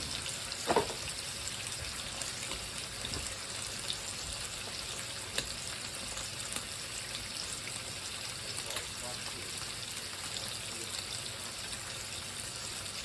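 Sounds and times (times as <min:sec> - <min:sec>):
food sizzling: 0:00.0 - 0:13.0.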